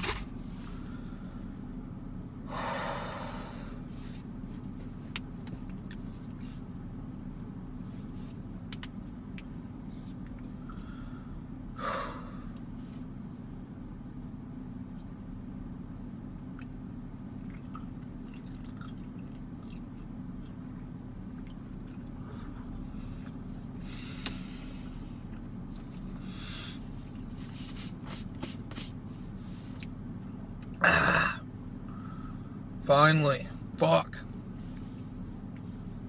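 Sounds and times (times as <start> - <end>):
man chewing and swallowing: 17.4 - 23.6.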